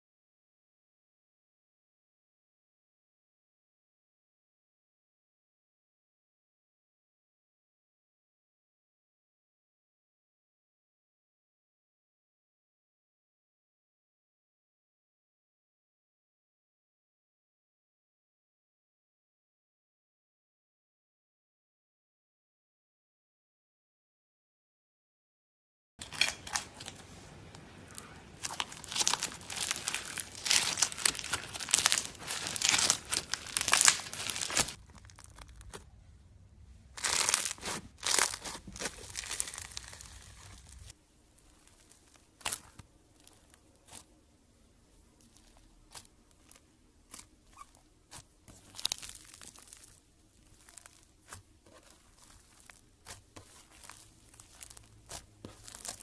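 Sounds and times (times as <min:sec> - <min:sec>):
slime crackling and popping: 0:27.9 - 0:35.9, 0:37.0 - 0:44.1, 0:45.2 - 0:56.0.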